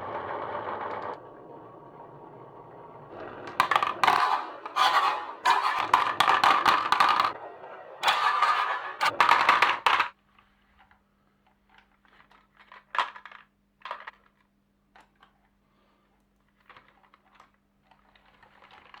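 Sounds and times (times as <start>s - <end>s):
loud clatter: 0.0s - 10.2s
marbles clicking on wooden marble run: 3.2s - 7.4s, 8.0s - 10.1s.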